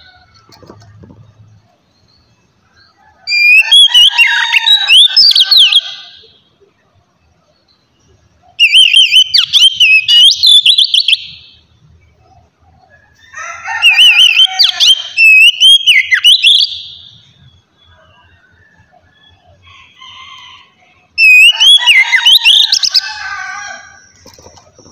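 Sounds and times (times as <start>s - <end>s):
bird singing whistled phrases: 3.3s - 6.1s, 8.6s - 11.6s, 13.8s - 18.2s, 21.2s - 23.1s.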